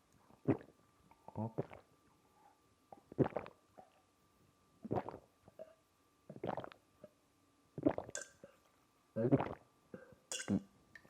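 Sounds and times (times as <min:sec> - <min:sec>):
man making throat sounds: 0:01.3 - 0:01.8, 0:09.2 - 0:10.7.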